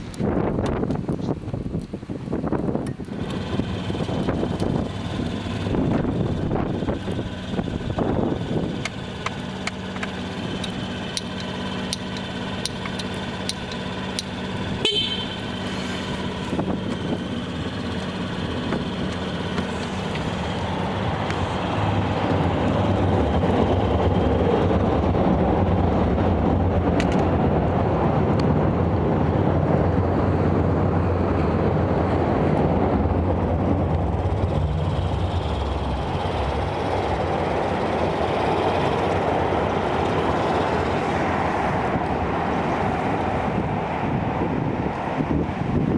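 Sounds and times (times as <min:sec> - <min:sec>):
scooter engine humming: 0:00.0 - 0:45.9.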